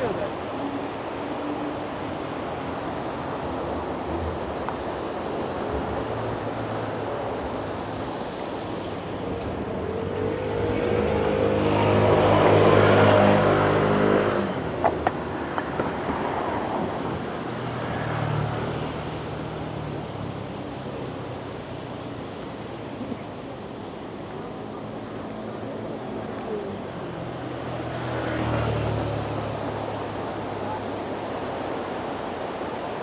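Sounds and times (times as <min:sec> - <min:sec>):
faint vehicle passing: 0:06.3 - 0:22.6, 0:25.0 - 0:32.6
vehicle passing: 0:09.0 - 0:20.5, 0:26.1 - 0:32.6.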